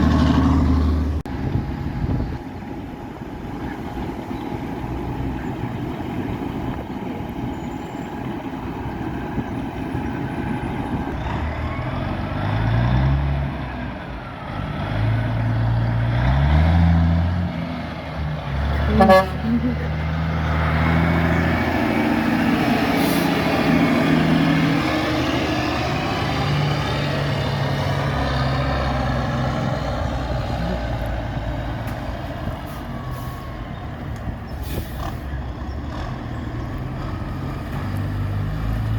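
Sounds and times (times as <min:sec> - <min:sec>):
diesel truck engine shifting gears: 0:00.0 - 0:38.9
truck horn blast: 0:18.7 - 0:20.2.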